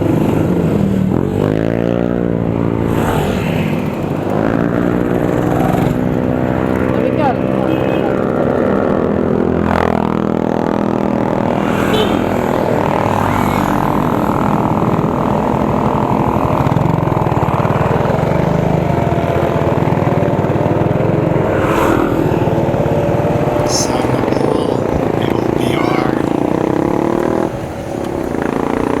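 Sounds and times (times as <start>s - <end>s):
vehicle engine running: 22.4s - 29.0s.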